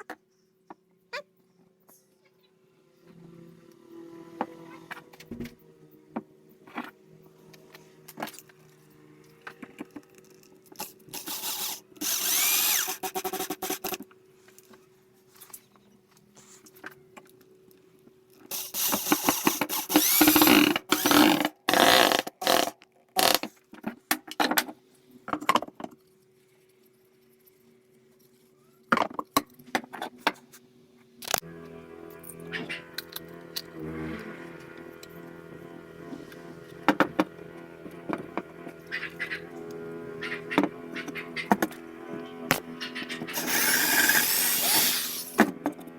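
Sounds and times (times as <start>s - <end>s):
power tool working wood: 10.8s - 14.0s, 18.5s - 23.4s, 31.4s - 42.6s, 43.2s - 45.8s.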